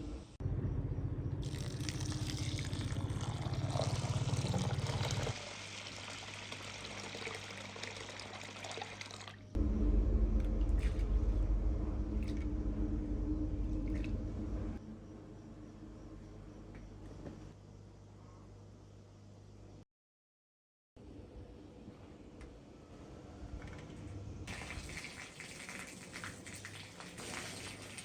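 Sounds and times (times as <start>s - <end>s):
low hum: 0.0s - 5.3s, 9.6s - 19.8s
loud low rumble: 0.3s - 2.4s, 9.6s - 16.5s
water pouring and splashing: 1.4s - 9.5s, 24.5s - 28.0s.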